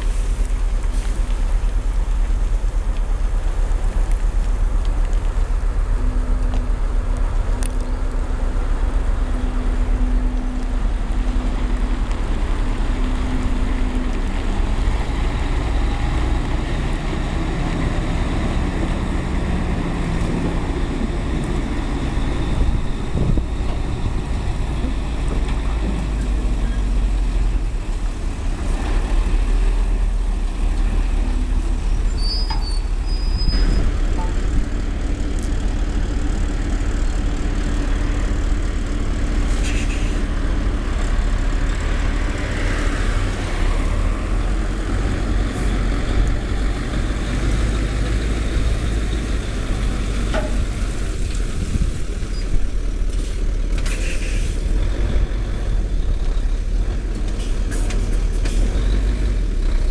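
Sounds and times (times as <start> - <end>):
diesel engine rumbling: 0.0 - 59.9
short clicks and hisses: 39.5 - 40.3, 53.2 - 54.7.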